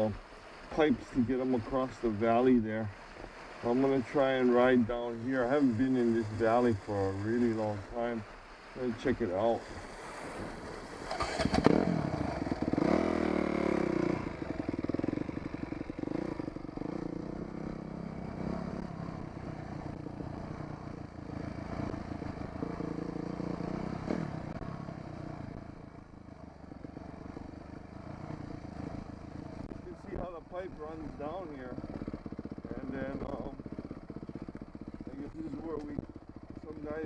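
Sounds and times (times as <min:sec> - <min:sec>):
dirt bike engine revving: 0:08.8 - 0:37.0.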